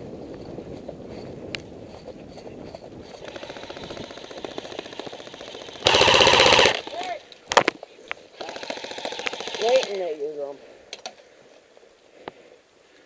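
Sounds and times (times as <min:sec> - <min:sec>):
airsoft guns firing full-auto: 0:03.2 - 0:07.1, 0:08.4 - 0:10.2.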